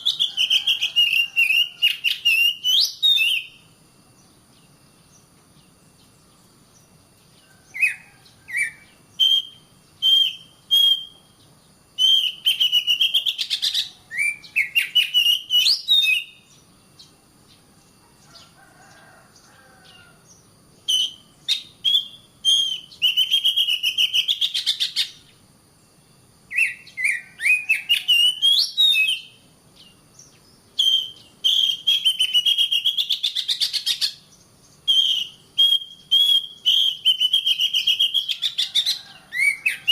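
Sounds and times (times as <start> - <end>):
bird singing chattering whistles: 0.0 - 4.3, 7.7 - 17.1, 20.8 - 25.4, 26.5 - 39.9.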